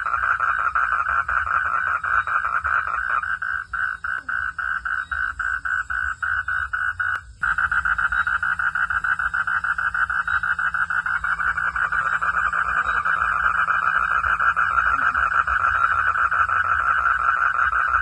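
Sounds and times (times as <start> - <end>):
frogs calling: 0.0 - 18.0.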